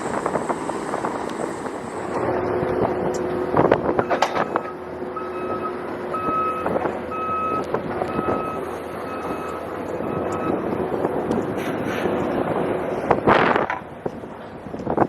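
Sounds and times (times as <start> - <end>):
steady background noise: 0.0 - 15.0
vehicle backup alarm beeping: 3.8 - 10.8.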